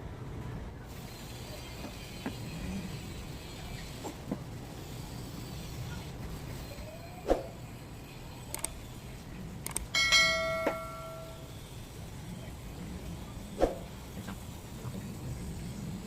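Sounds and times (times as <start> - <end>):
metal object ringing clink: 10.0 - 11.5.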